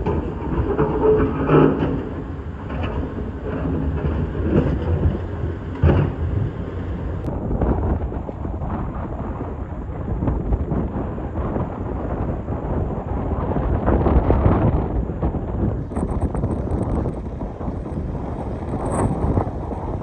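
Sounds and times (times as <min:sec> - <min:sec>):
bucket scraping and knocking stones: 0:00.0 - 0:06.6
diesel engine under load: 0:00.0 - 0:07.4, 0:10.9 - 0:20.0.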